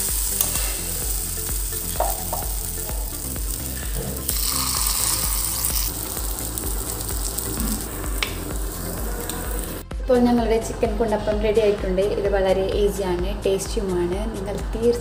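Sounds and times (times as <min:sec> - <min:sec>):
food sizzling in hot oil: 0:00.0 - 0:09.8.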